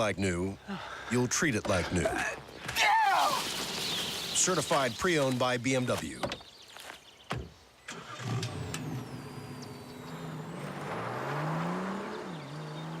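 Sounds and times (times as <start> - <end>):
car engine accelerating: 7.9 - 13.0.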